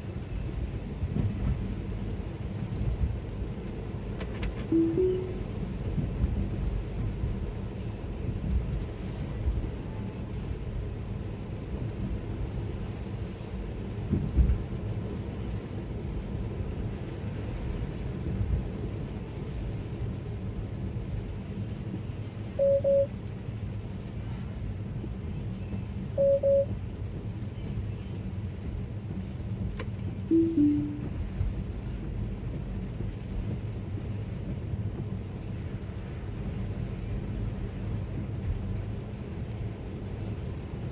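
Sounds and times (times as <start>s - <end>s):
car road rumble: 0.0s - 40.9s
short high beeps: 4.7s - 5.4s, 22.6s - 23.1s, 26.2s - 26.7s, 30.3s - 31.1s.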